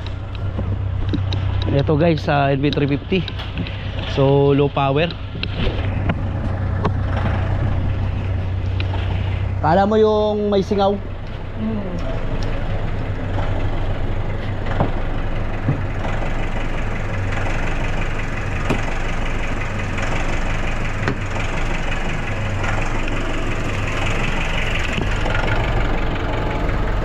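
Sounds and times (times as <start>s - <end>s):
van engine idling roughly: 0.0s - 27.0s
sharp engine ticks: 9.8s - 27.0s.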